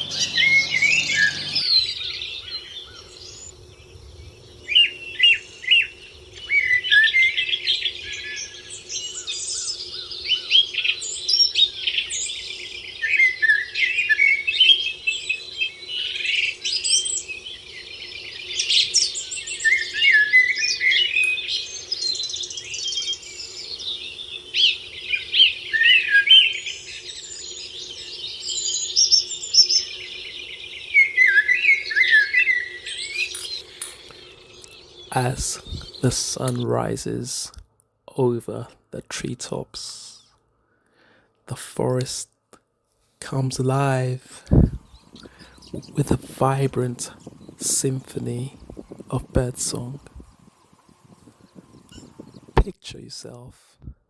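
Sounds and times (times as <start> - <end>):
faint steady low hum: 0.0 - 1.8, 43.0 - 53.8
chorus of songbirds: 0.0 - 37.6, 43.3 - 53.6.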